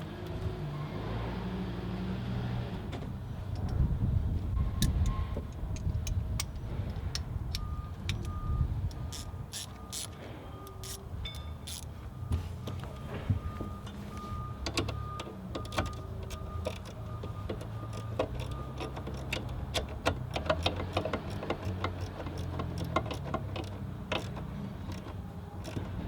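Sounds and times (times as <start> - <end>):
metallic clicks of hand tools: 4.8 - 11.9, 14.6 - 26.0.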